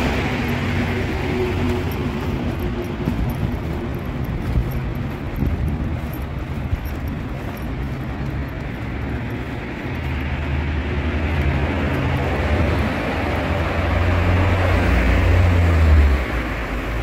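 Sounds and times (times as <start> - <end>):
standing train humming: 0.0 - 14.7.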